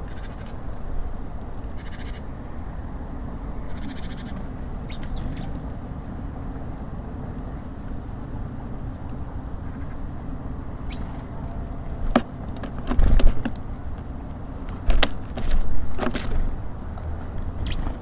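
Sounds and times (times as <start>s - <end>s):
songbirds chattering: 3.7s - 5.6s, 9.6s - 18.0s.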